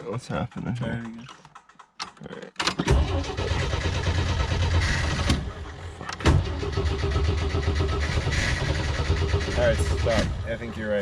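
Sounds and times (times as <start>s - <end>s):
starter cranking engine: 0.5s - 11.0s.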